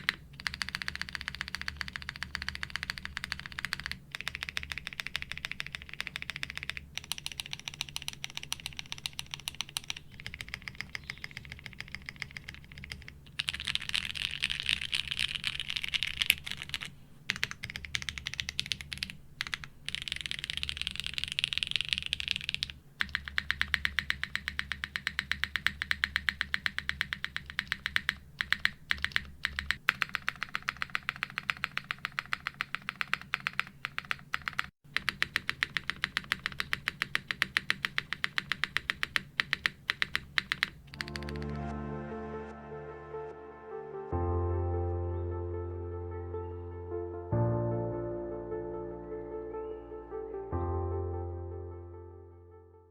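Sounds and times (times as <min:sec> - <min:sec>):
mechanical keyboard keys clacking: 0:00.0 - 0:41.6.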